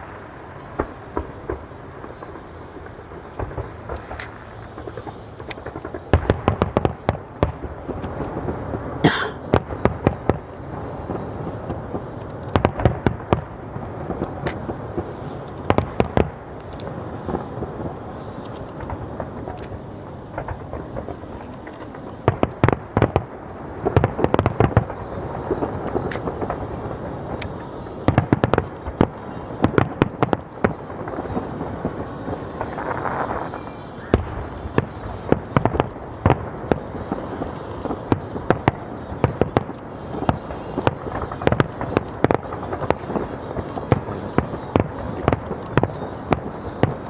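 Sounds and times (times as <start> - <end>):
fireworks bursting: 0.0 - 47.0
rumble and crackle of explosions: 0.0 - 47.0.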